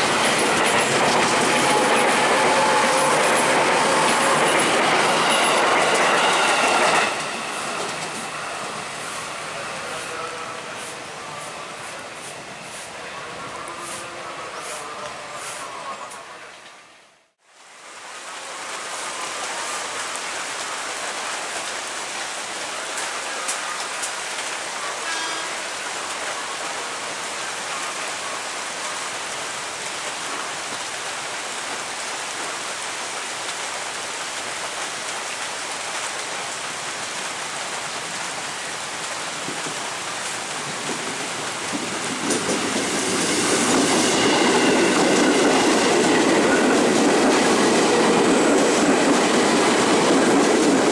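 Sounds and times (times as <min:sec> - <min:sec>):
heavy rain falling: 0:00.0 - 0:13.7, 0:17.4 - 0:50.9
electric train rumble: 0:00.0 - 0:16.5.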